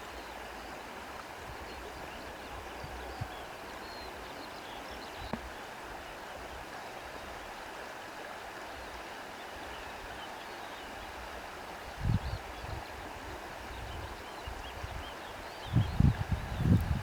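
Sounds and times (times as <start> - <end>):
wind rustling through reeds: 11.9 - 17.0.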